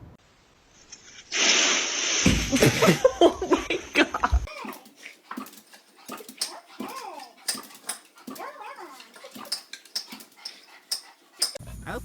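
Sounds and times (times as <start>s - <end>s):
dog whining: 4.4s - 11.6s.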